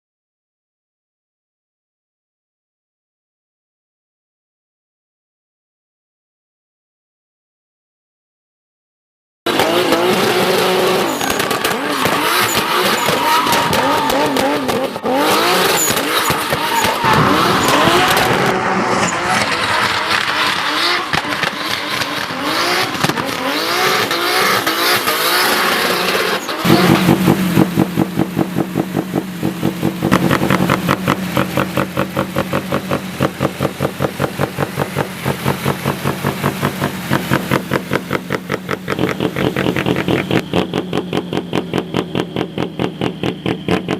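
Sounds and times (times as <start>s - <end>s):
car engine revving: 9.5s - 43.9s
tyres screeching: 10.2s - 27.0s.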